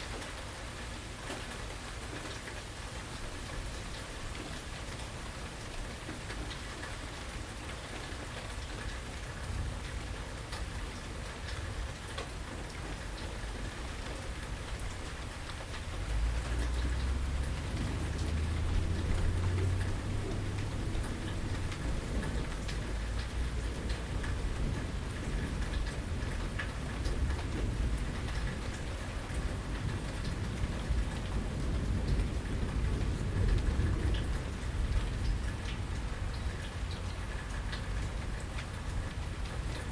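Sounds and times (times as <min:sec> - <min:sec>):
steady rain falling: 0:00.0 - 0:39.9
raindrops ticking: 0:01.2 - 0:39.9
thunder rumbling: 0:15.9 - 0:28.8.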